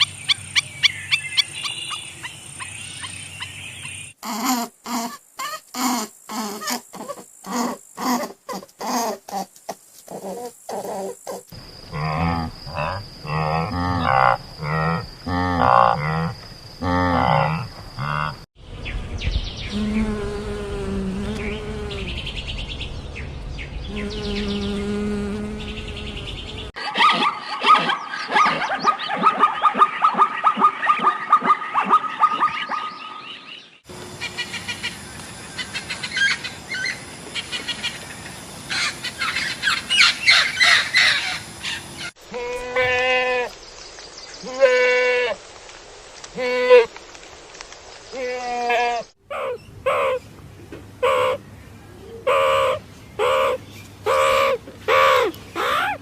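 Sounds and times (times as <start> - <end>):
long drawn-out animal calls: 4.2 - 9.5, 48.1 - 50.3, 51.0 - 51.4, 52.2 - 56.0
low rumble: 21.0 - 26.7.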